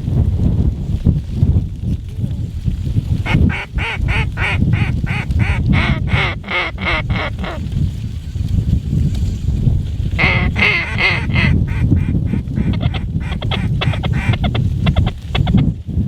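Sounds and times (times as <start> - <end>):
wind rumble on microphone: 0.0 - 16.0
goose honking: 3.3 - 7.6, 10.2 - 15.6.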